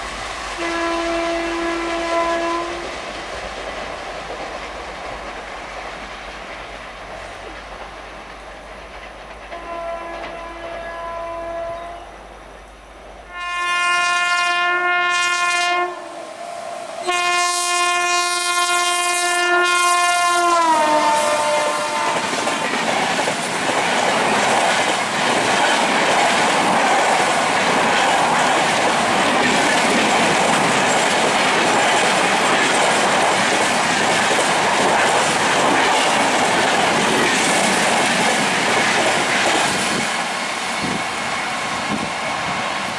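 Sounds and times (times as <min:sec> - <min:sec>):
train coaches rushing and rattling: 0:00.0 - 0:12.8, 0:15.9 - 0:42.9
locomotive horn blasts: 0:00.6 - 0:02.8, 0:09.6 - 0:12.1, 0:13.3 - 0:22.8.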